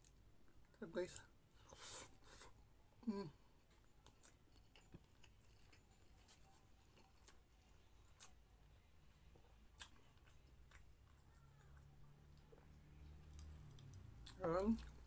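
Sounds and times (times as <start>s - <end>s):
soft chewing clicks: 3.6s - 15.0s.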